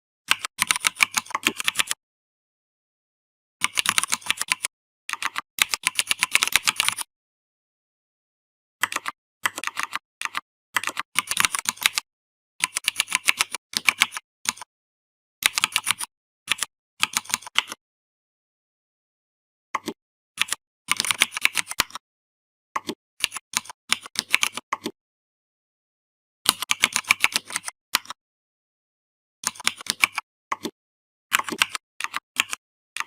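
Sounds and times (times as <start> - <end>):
typing on computer keyboard: 0.3 - 2.0, 3.6 - 7.1, 8.8 - 14.7, 15.4 - 17.8, 19.8 - 22.0, 22.8 - 25.0, 26.5 - 28.2, 29.4 - 33.0.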